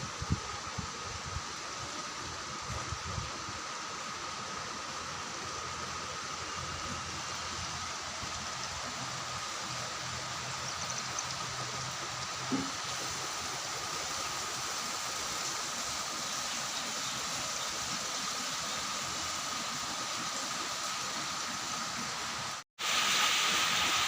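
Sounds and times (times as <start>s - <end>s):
rushing water in heavy rain: 0.0s - 24.0s
short knock: 12.5s - 12.8s.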